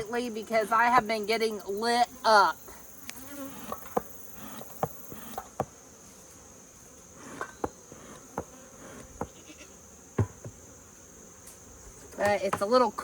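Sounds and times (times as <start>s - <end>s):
high-pitched insect drone: 0.0s - 5.5s
bees buzzing past: 0.0s - 13.0s.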